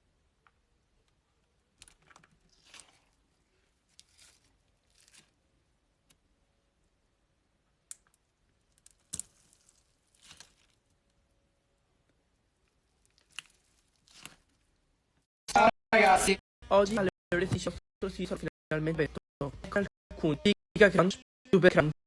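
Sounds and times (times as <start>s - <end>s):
crunchy slime crackling: 1.8s - 5.4s, 8.5s - 11.1s, 12.7s - 14.8s.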